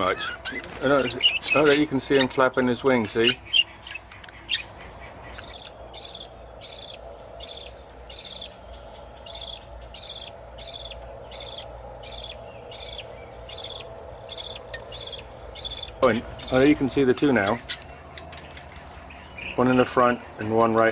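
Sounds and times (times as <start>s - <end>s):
insect chirping: 3.3s - 16.9s.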